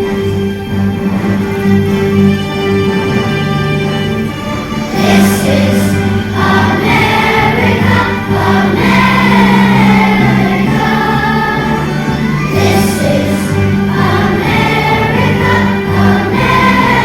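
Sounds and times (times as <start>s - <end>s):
instrumental accompaniment: 0.0s - 17.0s
choir singing: 4.4s - 17.0s.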